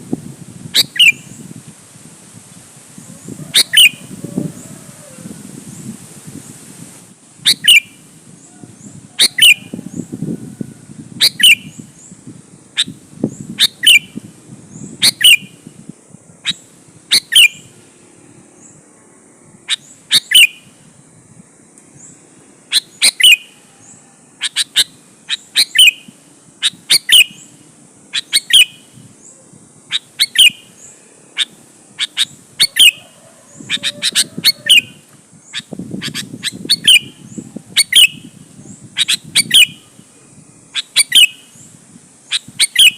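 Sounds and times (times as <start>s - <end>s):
bulbul calling: 0.8s - 1.4s, 3.5s - 4.7s, 7.4s - 8.0s, 8.6s - 10.1s, 11.2s - 12.1s, 12.8s - 15.6s, 16.4s - 17.7s, 19.7s - 20.7s, 22.7s - 40.1s, 40.7s - 42.9s.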